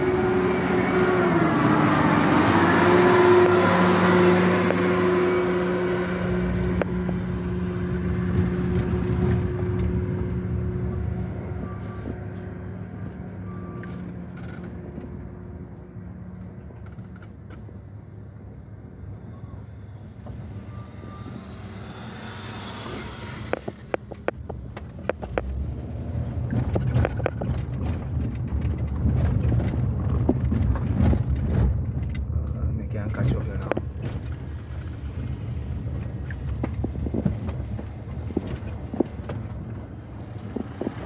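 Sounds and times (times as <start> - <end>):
car engine and road hum: 0.0 - 41.0
sharp knocks and rattles: 23.6 - 32.3.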